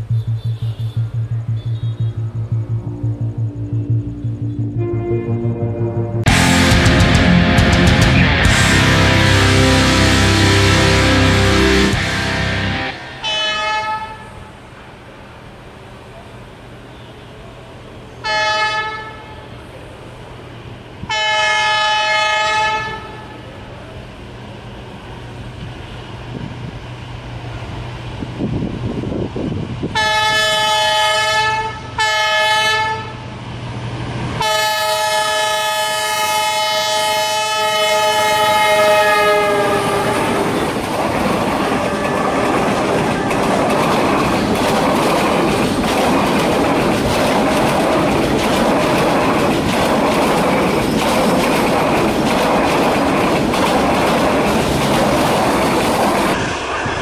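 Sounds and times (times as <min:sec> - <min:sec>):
passing train rumble: 0:00.0 - 0:57.0
train horn blasts: 0:04.7 - 0:07.6, 0:08.5 - 0:14.5, 0:18.2 - 0:19.6, 0:21.0 - 0:23.4, 0:29.9 - 0:33.3, 0:34.4 - 0:40.6, 0:41.6 - 0:43.5
wheels clacking over rail joints: 0:38.7 - 0:56.4.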